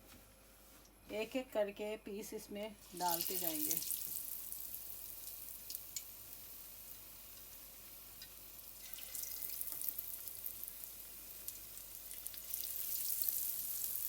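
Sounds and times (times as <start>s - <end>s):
oil sizzling and crackling: 2.8s - 14.0s
sharp pops of frying oil: 3.2s - 8.5s, 9.4s - 12.8s.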